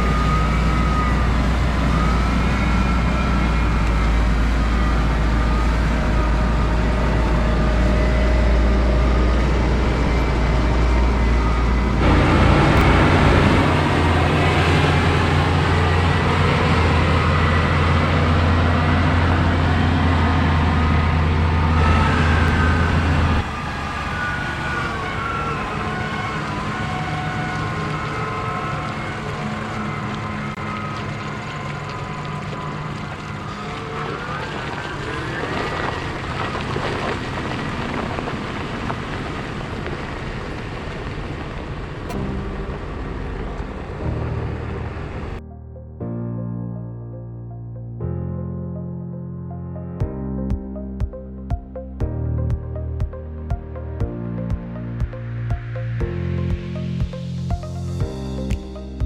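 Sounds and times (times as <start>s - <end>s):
high whine: 0.0s - 26.0s, 42.1s - 47.3s, 50.0s - 59.0s
tractor engines droning: 0.0s - 45.5s, 50.8s - 59.0s.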